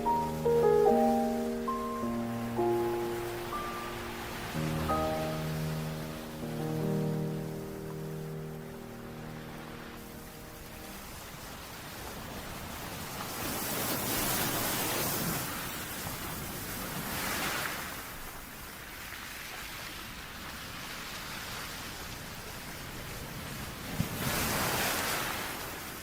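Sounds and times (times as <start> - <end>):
ocean surf noise: 0.0 - 19.0.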